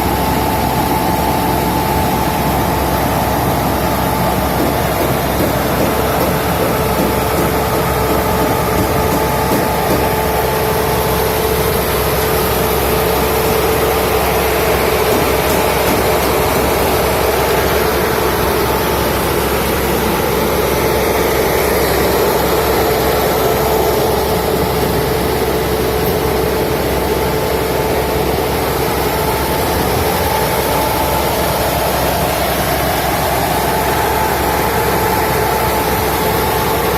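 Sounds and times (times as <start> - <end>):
machinery humming: 0.0 - 36.9.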